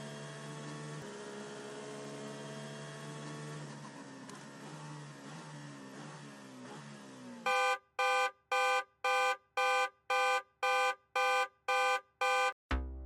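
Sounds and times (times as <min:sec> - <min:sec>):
electronic buzzer beeping: 0:07.5 - 0:12.6.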